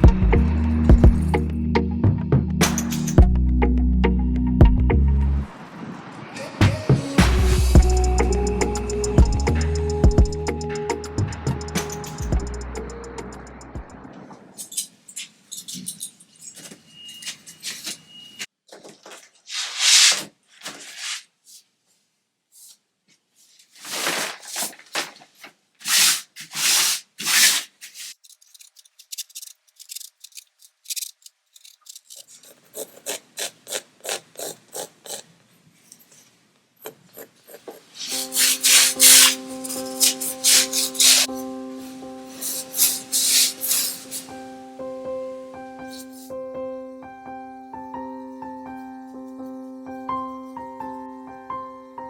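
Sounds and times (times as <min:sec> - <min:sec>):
hand-made scraping strokes: 0:19.4 - 0:21.7, 0:23.4 - 0:24.8, 0:25.8 - 0:41.3, 0:42.4 - 0:44.4.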